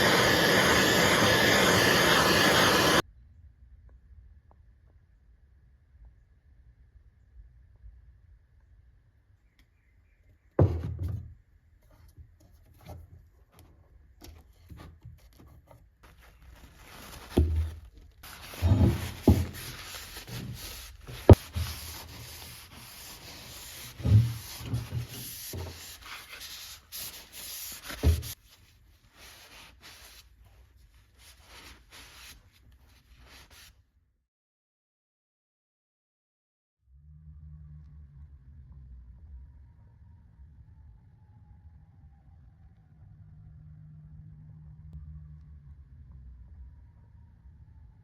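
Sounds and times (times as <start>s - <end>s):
hand sanding strokes: 18.2s - 28.4s.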